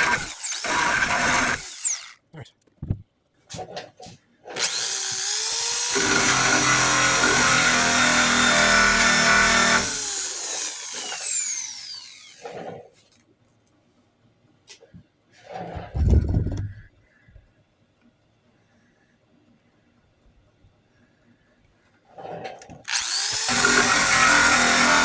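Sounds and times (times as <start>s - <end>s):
wire wheel power tool whining: 0.0s - 2.2s, 4.6s - 12.6s, 22.9s - 25.0s.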